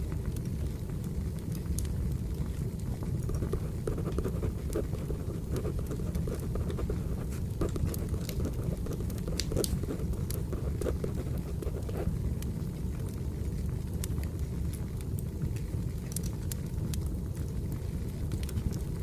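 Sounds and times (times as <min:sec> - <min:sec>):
fire crackles and pops: 0:00.0 - 0:19.0
wood fire burning: 0:00.0 - 0:19.0.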